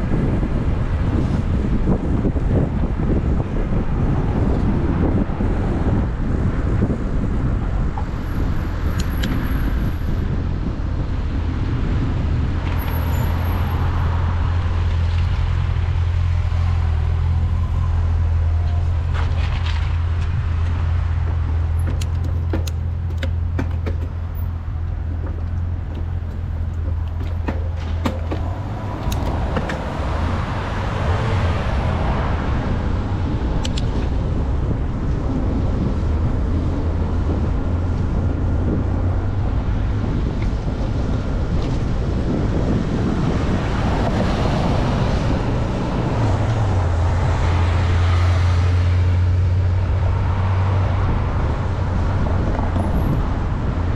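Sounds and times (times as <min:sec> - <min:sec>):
passing vehicles: 0:00.0 - 0:53.9
road traffic: 0:00.0 - 0:53.9
wind rumble on microphone: 0:00.0 - 0:53.9
sharp clicks: 0:21.8 - 0:30.0, 0:33.6 - 0:33.9.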